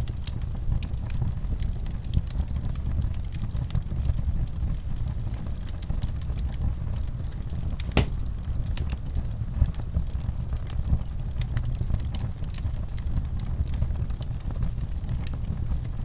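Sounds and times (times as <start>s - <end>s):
wood fire crackling: 7.8s - 8.3s.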